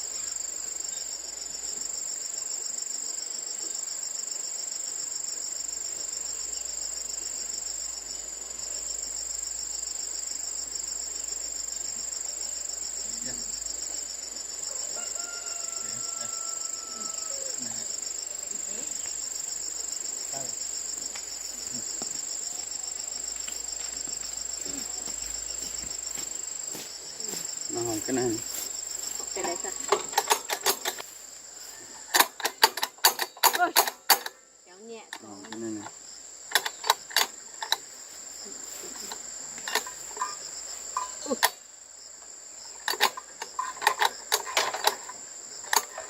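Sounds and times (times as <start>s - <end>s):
crickets droning: 0.0s - 46.0s
insects chirping trill: 0.0s - 46.0s.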